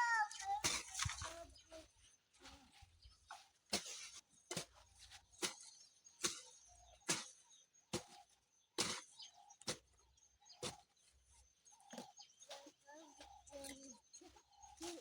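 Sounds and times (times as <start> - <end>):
garden tool chopping soil: 3.6 - 10.0, 10.6 - 11.0.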